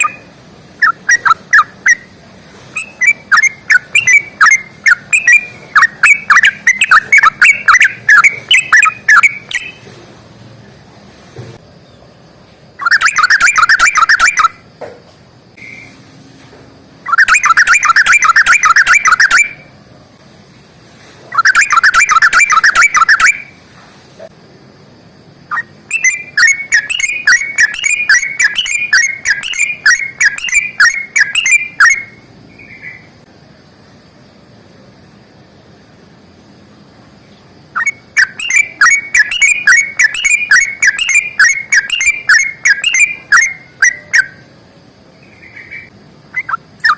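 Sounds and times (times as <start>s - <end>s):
bird chattering notes: 0.0s - 9.9s, 12.8s - 14.6s, 17.1s - 19.6s, 21.3s - 23.5s, 25.5s - 33.0s, 37.8s - 44.4s, 45.3s - 46.9s
bulbul bubbling song: 0.0s - 9.9s, 12.8s - 14.6s, 17.0s - 19.7s, 21.3s - 23.6s, 25.5s - 33.0s, 37.7s - 44.5s, 45.4s - 46.9s.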